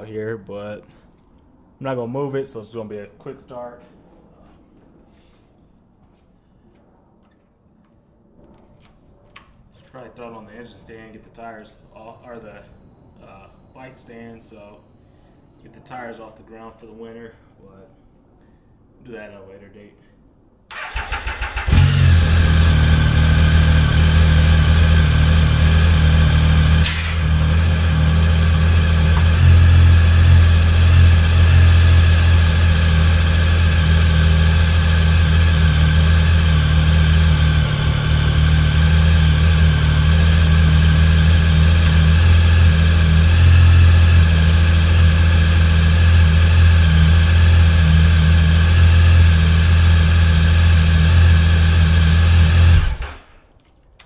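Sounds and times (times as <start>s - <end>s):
motorcycle engine idling: 21.5s - 53.0s.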